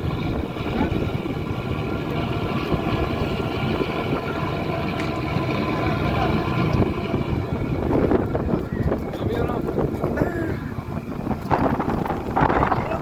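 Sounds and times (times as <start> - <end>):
engine running steadily: 0.0 - 13.0
wind rumbling on microphone: 0.0 - 13.0.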